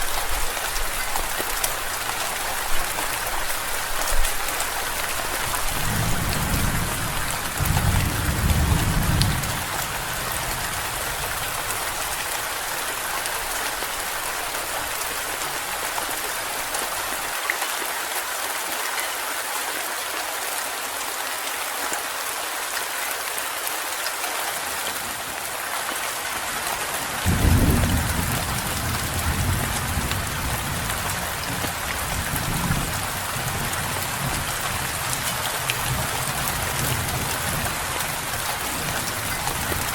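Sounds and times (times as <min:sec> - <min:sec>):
heavy rain hissing: 0:00.0 - 0:17.4, 0:24.2 - 0:39.9
thunder rumbling: 0:05.7 - 0:11.4, 0:27.2 - 0:31.1.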